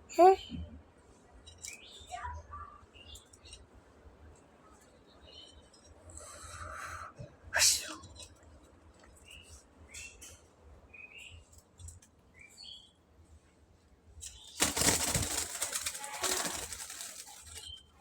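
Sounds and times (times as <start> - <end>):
wings flapping: 14.3 - 17.9.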